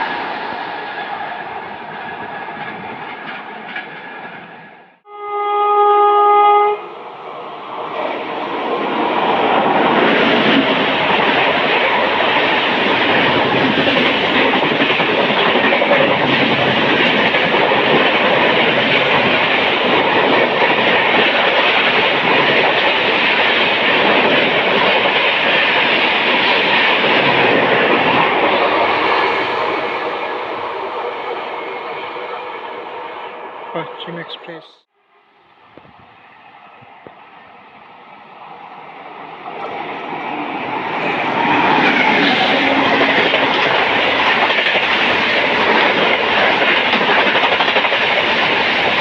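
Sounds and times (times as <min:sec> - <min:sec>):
train rushing past: 0:00.0 - 0:49.0
train horn blast: 0:05.0 - 0:07.0, 0:42.4 - 0:43.6.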